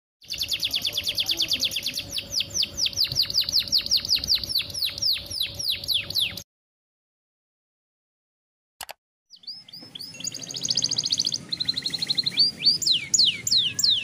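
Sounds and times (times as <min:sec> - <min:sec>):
canary singing: 0:00.2 - 0:06.4, 0:09.3 - 0:14.0.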